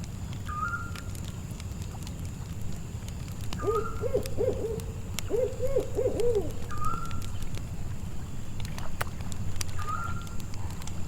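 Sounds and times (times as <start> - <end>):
campfire crackling: 0.0 - 11.0
owl hooting: 3.6 - 7.0.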